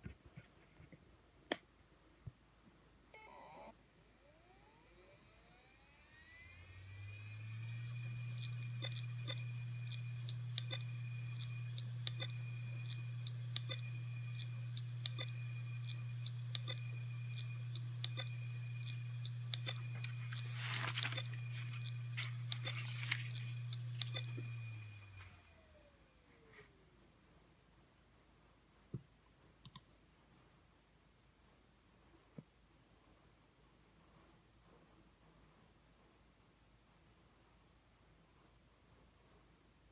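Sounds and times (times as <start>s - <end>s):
hard drive spinning hum: 3.2s - 26.5s
hard drive heads clicking: 4.3s - 25.2s.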